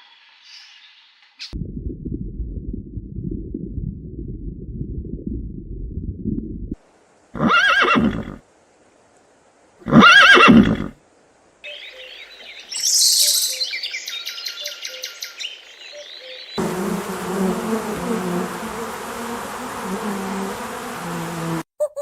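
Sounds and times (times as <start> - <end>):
low rumble: 1.6 - 6.8
horse whinnying: 7.4 - 8.4, 9.8 - 11.0
birds chirping: 11.7 - 21.6.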